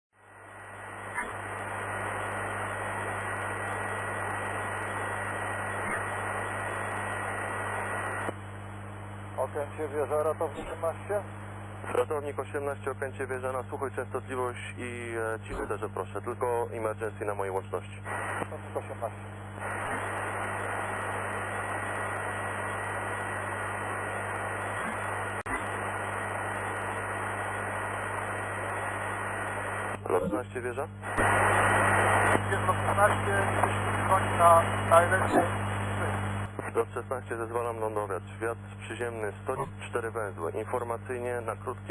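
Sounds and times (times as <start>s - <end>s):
faint steady tone and hum: 0.2s - 41.9s
radio static hiss: 0.2s - 41.9s
radio click: 10.4s - 10.9s, 18.1s - 30.2s, 31.0s - 36.8s.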